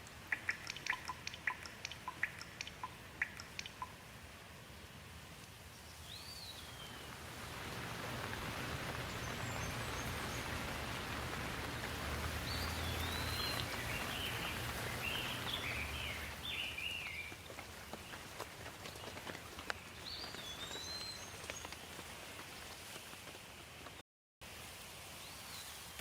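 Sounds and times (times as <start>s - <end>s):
rain hiss: 0.0s - 26.0s
bird chirping: 0.3s - 4.0s, 5.7s - 22.0s.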